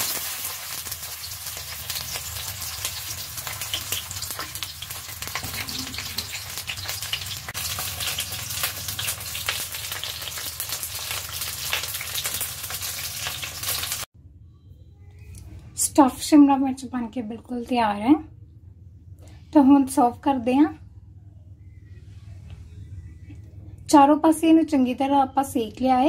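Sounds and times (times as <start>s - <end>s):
peppers sizzling in oil: 0.0s - 14.1s.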